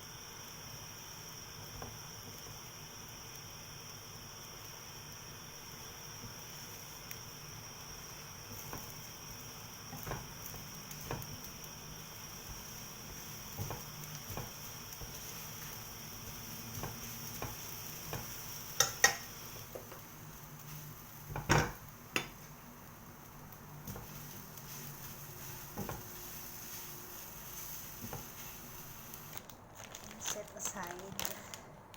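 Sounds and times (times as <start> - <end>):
egg sizzling in a pan: 0.0 - 29.6
spatula tapping on pan: 9.9 - 11.5, 12.4 - 15.3, 16.2 - 20.1, 21.3 - 22.4, 25.7 - 26.2.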